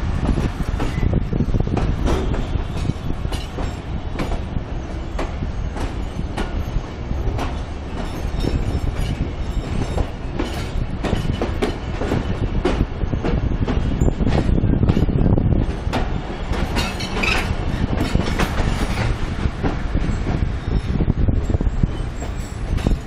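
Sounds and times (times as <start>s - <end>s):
train coach rumble: 0.0s - 23.0s
wheel clacks on rail joints: 0.0s - 23.0s.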